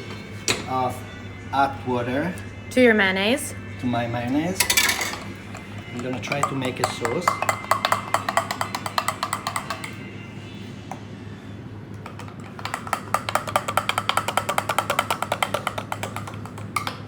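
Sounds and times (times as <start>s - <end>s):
steady low hum: 0.0s - 12.4s
whisk clicking against bowl: 5.9s - 10.0s, 12.3s - 17.0s.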